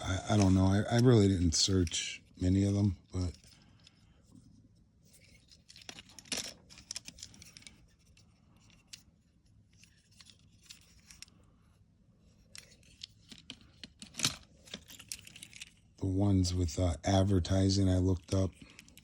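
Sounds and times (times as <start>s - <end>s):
toy cars clicking and scraping: 0.0s - 4.4s, 5.0s - 11.5s, 12.3s - 15.9s, 17.5s - 19.0s.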